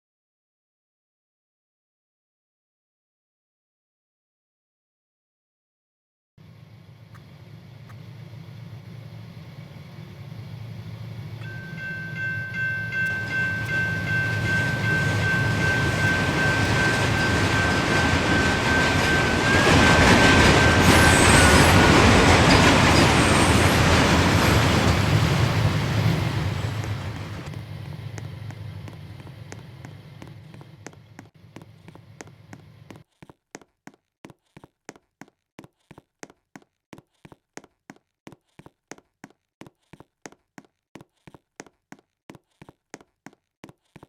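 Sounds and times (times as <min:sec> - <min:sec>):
freight train rumbling past: 0:06.4 - 0:32.9.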